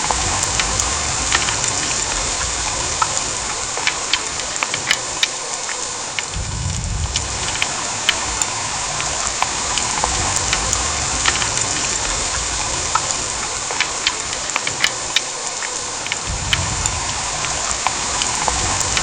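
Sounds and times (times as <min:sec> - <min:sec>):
low rumble: 0:00.0 - 0:03.6, 0:06.3 - 0:13.7, 0:16.3 - 0:19.0
heavy rain pouring: 0:00.0 - 0:19.0.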